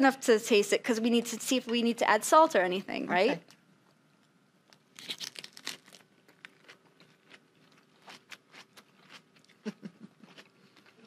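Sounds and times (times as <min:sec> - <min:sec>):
people crunching lettuce wraps: 0:04.7 - 0:11.0.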